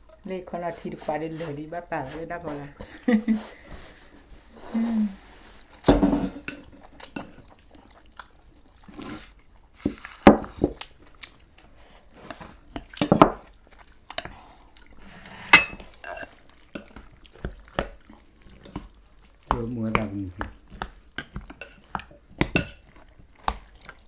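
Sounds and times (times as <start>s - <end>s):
utensils clinking against dishes: 15.4s - 16.9s.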